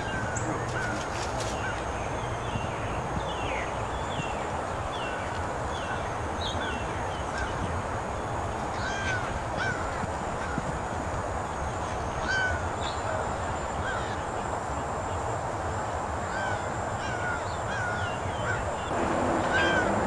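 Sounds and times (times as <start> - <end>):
birds calling: 0.0 - 15.2, 15.8 - 20.0
steady background rush: 0.0 - 20.0.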